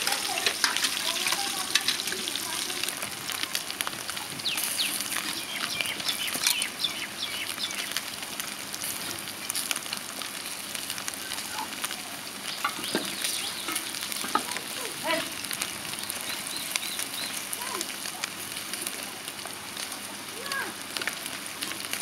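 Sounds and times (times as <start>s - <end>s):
food sizzling in hot oil: 0.0s - 22.0s
oil crackling and spitting: 0.0s - 22.0s.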